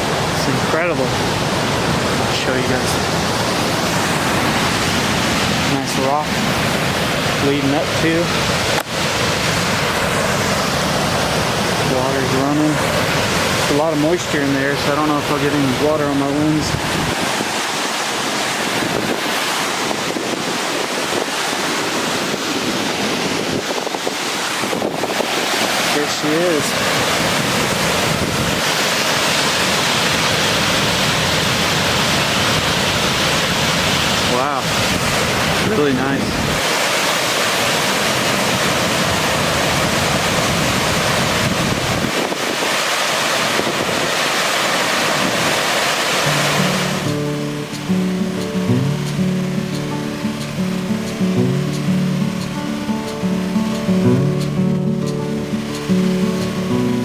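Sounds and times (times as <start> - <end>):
waterfall rushing: 0.0 - 57.0
music: 46.3 - 57.0.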